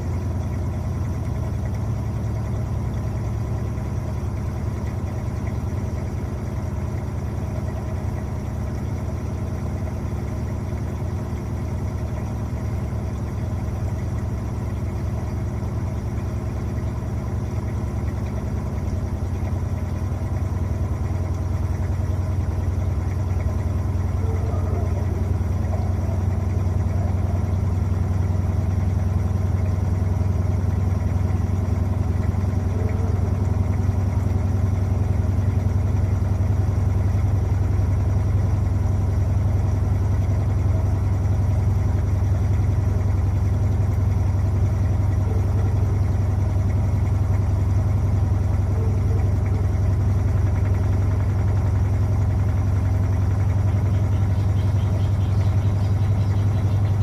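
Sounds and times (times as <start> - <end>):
washing machine motor hum: 0.0 - 57.0.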